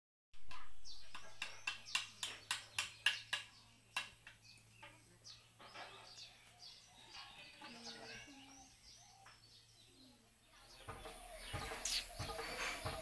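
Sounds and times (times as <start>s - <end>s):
bird chirping: 0.4s - 13.0s.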